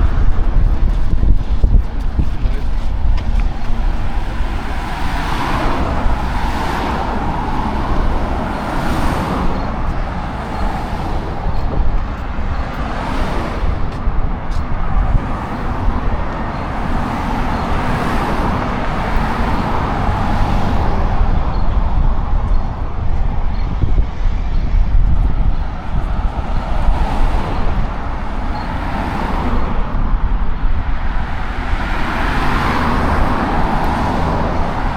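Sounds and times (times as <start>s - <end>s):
cars passing by: 0.0s - 34.9s
road traffic noise: 0.0s - 34.9s.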